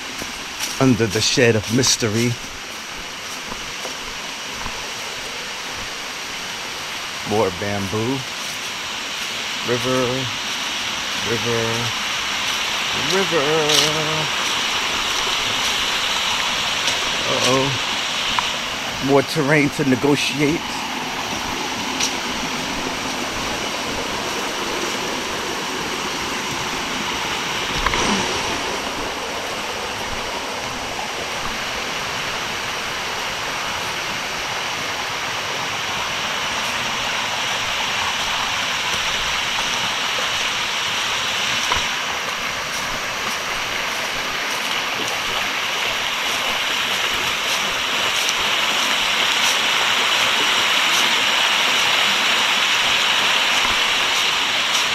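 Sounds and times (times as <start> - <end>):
rushing river water: 0.0 - 54.9.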